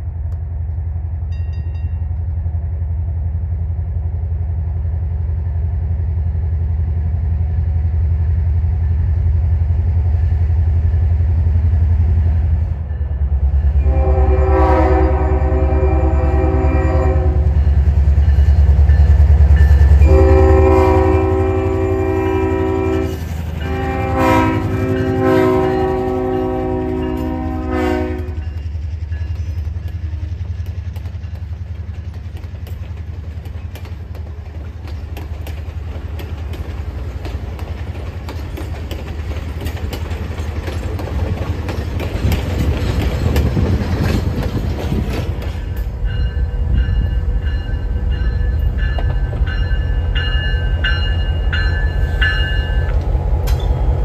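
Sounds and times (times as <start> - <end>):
diesel locomotive engine running: 0.0 - 54.0
rail cars rumbling and clattering: 0.0 - 54.0
air horn blasts: 13.8 - 17.5, 20.0 - 28.4.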